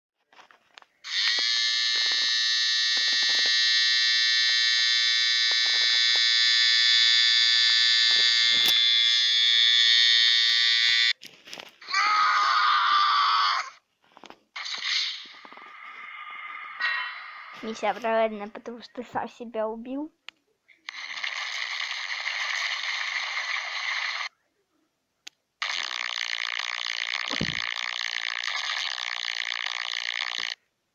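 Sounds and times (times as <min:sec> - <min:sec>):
wavering electronic tone: 0:01.1 - 0:11.1
electronic alarm tone: 0:01.1 - 0:11.2.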